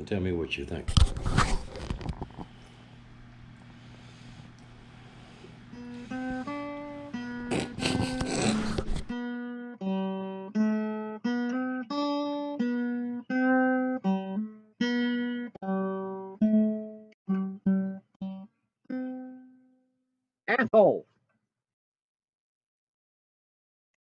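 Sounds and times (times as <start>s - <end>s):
plucked guitar melody: 5.7s - 19.7s.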